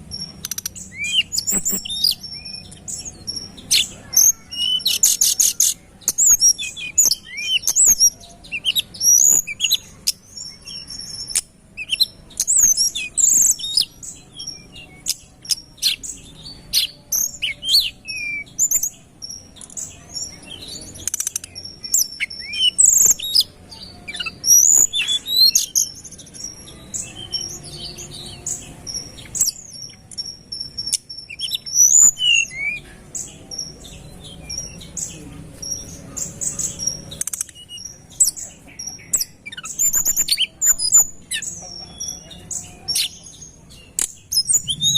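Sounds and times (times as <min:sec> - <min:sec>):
bird chirping and trilling: 0:00.0 - 0:44.9.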